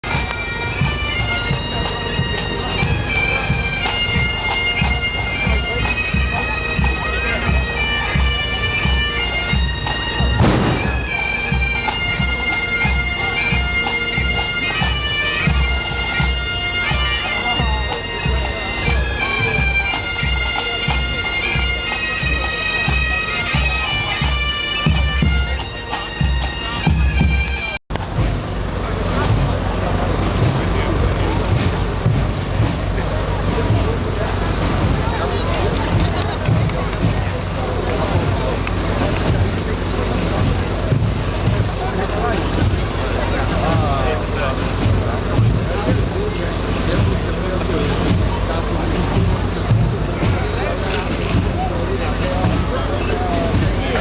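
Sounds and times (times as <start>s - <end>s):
bagpipes playing: 0.0s - 27.8s, 33.4s - 54.0s
marching drum beat: 0.0s - 54.0s
sharp bang: 10.4s - 11.2s.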